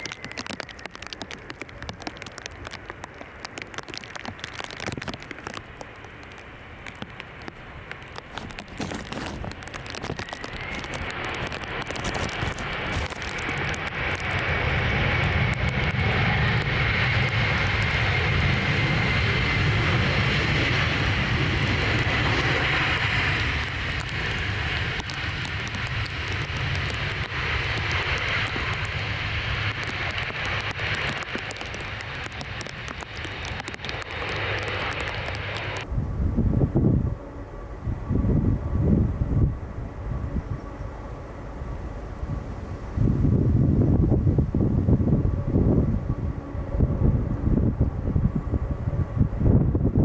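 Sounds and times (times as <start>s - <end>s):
jet engines flying past: 0.0s - 50.0s.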